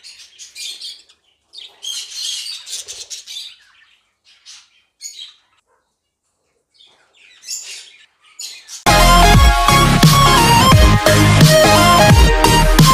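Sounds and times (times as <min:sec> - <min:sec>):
small parrots chirping: 0:00.0 - 0:05.6, 0:06.8 - 0:08.9.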